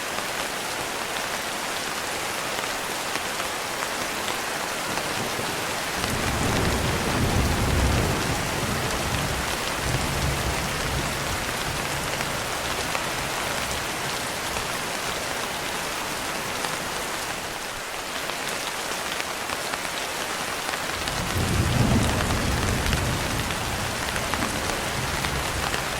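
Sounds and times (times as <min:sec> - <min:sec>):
steady rain: 0:00.0 - 0:25.9
low thunder rumbles: 0:06.0 - 0:12.6, 0:21.0 - 0:25.9.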